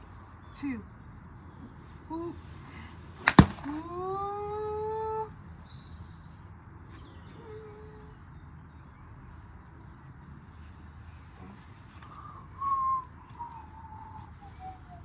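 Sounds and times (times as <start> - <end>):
sharp bangs: 3.2 - 3.8.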